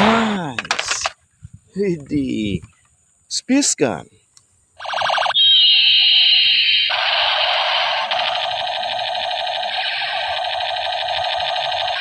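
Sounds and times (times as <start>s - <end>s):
toy gun electronic sound effect: 4.8s - 12.0s.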